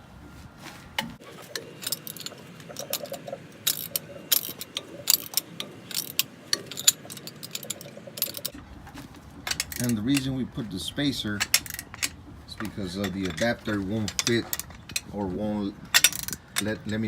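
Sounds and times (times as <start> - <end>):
metal socket clinking on nuts: 1.5 - 8.6, 9.4 - 10.4, 11.1 - 17.0
ratchet wrench clicking: 1.5 - 8.6, 15.9 - 17.0.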